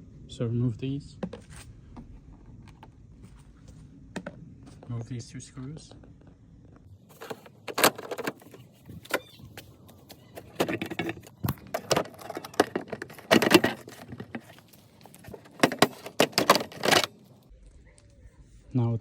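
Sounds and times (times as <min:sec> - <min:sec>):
screwdriver clicking and screws rattling: 0:10.0 - 0:17.2.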